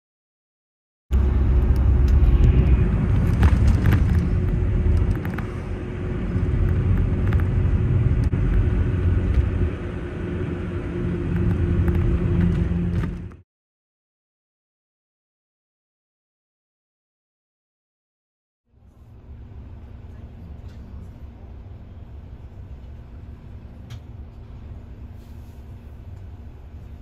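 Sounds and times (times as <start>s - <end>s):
constant hum: 1.1s - 13.4s, 18.7s - 27.0s
vehicle rumbling in motion: 1.1s - 13.4s, 18.7s - 27.0s.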